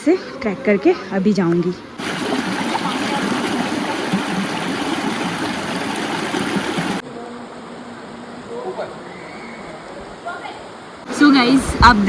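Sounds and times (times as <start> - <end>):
stream water rushing: 2.0 - 7.0.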